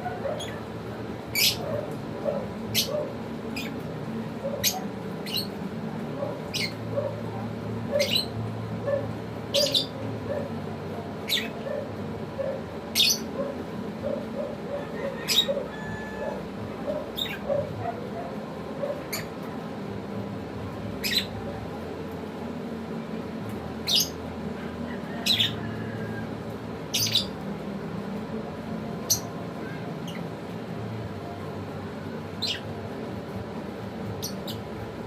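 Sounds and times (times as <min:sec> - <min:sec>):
lovebirds squawking: 0:00.0 - 0:19.4, 0:23.8 - 0:25.8, 0:26.9 - 0:27.4.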